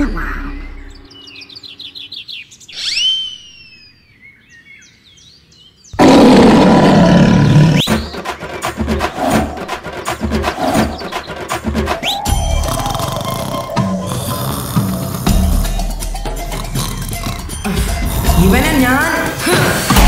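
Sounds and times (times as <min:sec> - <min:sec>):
twittering chirps: 0:00.0 - 0:04.4, 0:10.9 - 0:13.8
small bird tweets: 0:00.4 - 0:06.0
falling whistle: 0:02.8 - 0:04.0
loud animal roar: 0:06.0 - 0:07.8
music with drum beat: 0:07.8 - 0:20.0.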